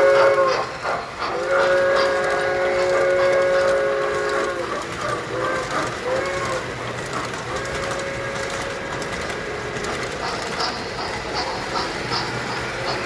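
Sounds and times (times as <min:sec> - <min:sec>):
toy train whistle: 0:00.0 - 0:10.8
model trains clattering: 0:00.0 - 0:13.0.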